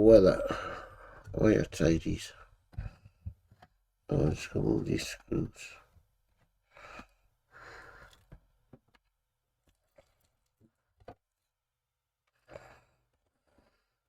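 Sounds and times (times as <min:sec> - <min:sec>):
soft breaths: 0:00.3 - 0:01.6, 0:06.6 - 0:08.3, 0:12.3 - 0:14.0.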